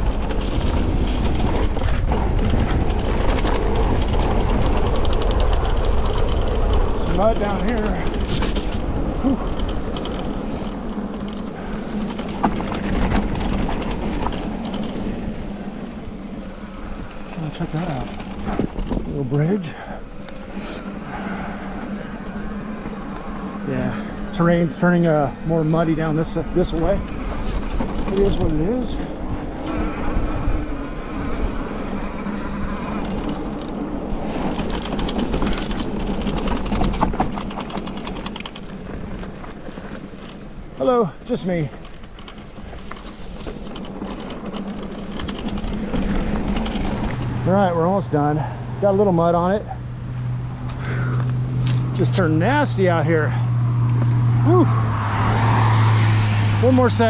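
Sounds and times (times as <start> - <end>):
wind on microphone: 0.0 - 24.3, 25.3 - 40.8
rapid crackle of clicks: 0.0 - 49.1
bike tyre noise: 0.0 - 57.0.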